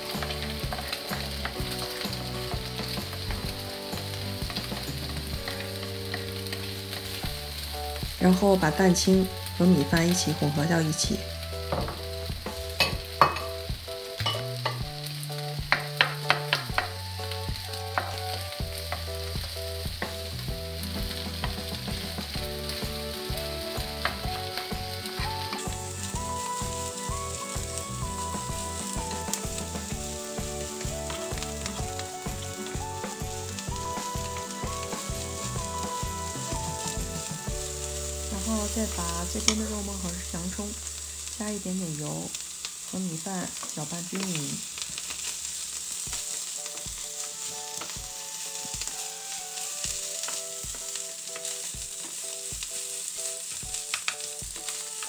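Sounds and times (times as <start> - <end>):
spatulas stirring and scraping: 0.0 - 9.1, 17.7 - 39.8
rice sizzling on a griddle: 0.0 - 55.0
spatulas clacking on griddle: 0.1 - 7.2, 12.8 - 13.6, 14.2 - 14.8, 15.7 - 17.0, 17.9 - 19.1.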